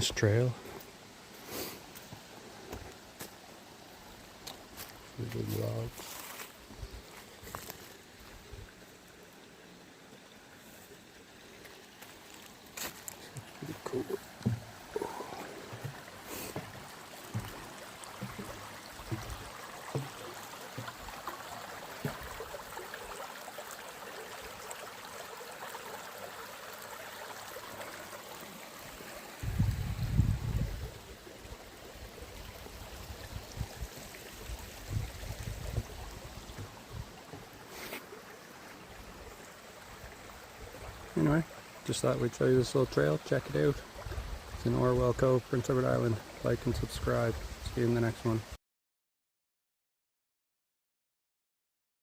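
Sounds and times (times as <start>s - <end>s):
stream running: 0.0s - 48.6s
soft low knocks: 14.4s - 16.0s, 16.6s - 20.9s.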